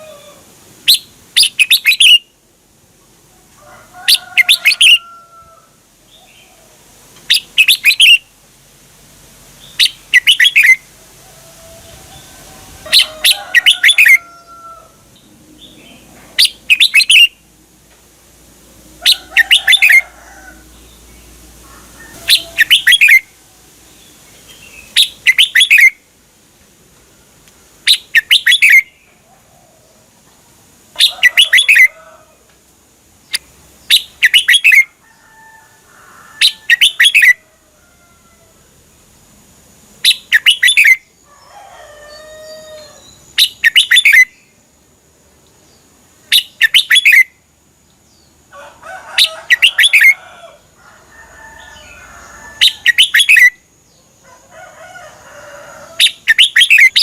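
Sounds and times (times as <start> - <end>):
bulbul singing: 0.8 - 2.3, 7.3 - 8.3, 9.6 - 10.9, 11.8 - 14.6, 15.2 - 17.5, 19.0 - 21.4, 22.2 - 23.3, 23.9 - 26.0, 27.9 - 29.1, 31.0 - 32.0, 33.2 - 34.9, 36.4 - 37.4, 40.0 - 41.1, 42.8 - 44.5, 46.2 - 47.4, 51.7 - 53.6, 56.0 - 57.0.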